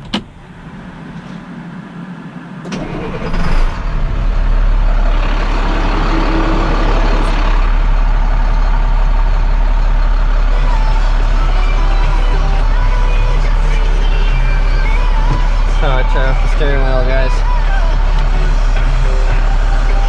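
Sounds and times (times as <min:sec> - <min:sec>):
diesel truck engine starting and running: 0:00.0 - 0:20.0.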